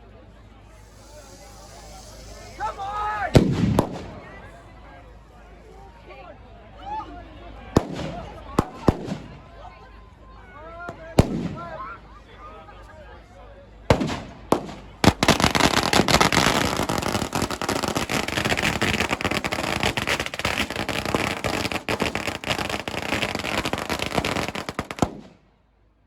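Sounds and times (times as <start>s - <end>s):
fireworks crackling: 0.6s - 4.7s, 7.8s - 9.5s, 10.9s - 11.9s, 13.9s - 25.4s
firework bang: 0.8s - 4.3s, 13.9s - 25.4s.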